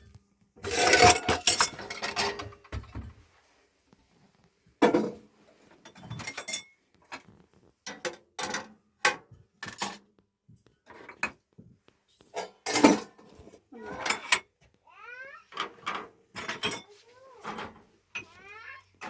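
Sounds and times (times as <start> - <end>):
dishes and utensils clinking: 0.6 - 2.8, 4.8 - 5.2, 5.8 - 7.3, 12.3 - 14.5, 15.6 - 18.5.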